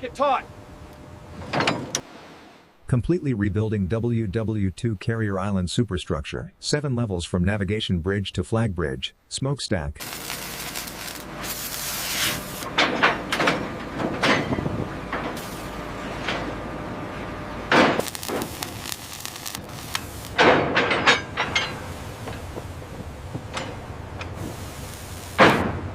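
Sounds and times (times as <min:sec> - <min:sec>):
metal clanks and scrapes: 0:12.2 - 0:16.6, 0:20.3 - 0:22.4, 0:23.5 - 0:24.4.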